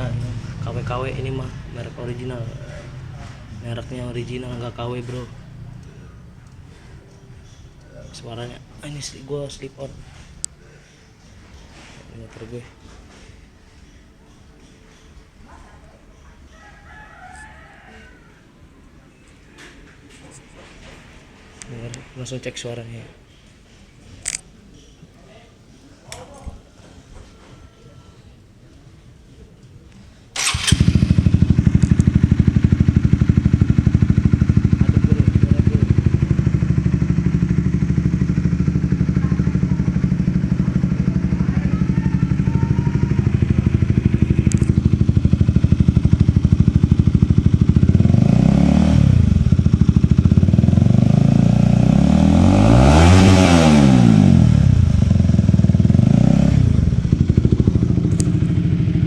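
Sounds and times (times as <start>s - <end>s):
motorcycle engine idling and revving: 0.0s - 13.5s, 30.4s - 59.0s.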